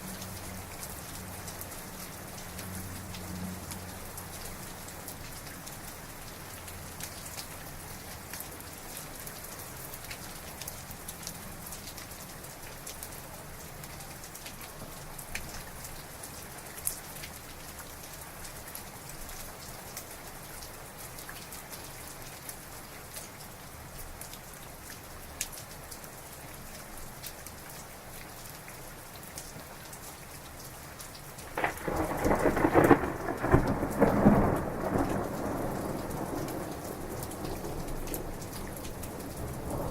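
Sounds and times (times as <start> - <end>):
heavy rain falling: 0.0 - 39.9
close thunder crack: 31.5 - 38.5.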